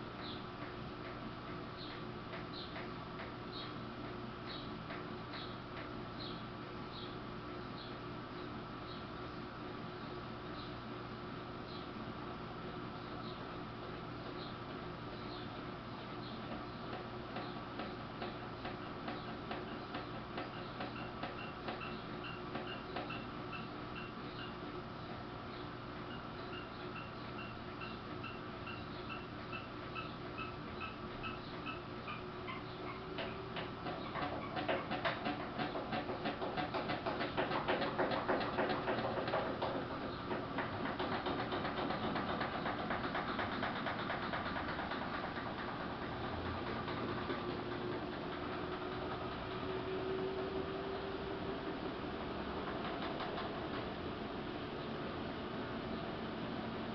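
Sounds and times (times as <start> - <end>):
washing machine humming: 0.0 - 56.9
washing machine rattling: 30.4 - 49.8, 51.7 - 55.8.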